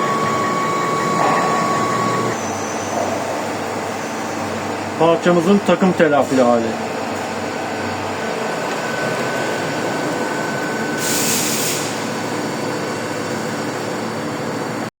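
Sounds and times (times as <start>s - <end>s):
thin whine: 0.0s - 4.9s
machine running: 0.0s - 14.8s
burst of hiss: 11.0s - 12.1s.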